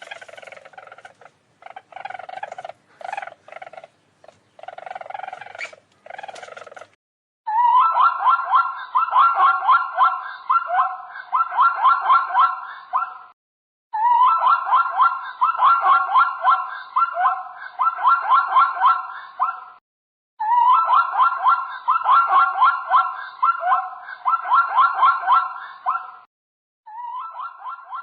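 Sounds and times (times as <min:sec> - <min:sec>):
short pulsed animal calls: 0:00.0 - 0:07.0
rising animal chirps: 0:00.0 - 0:09.4.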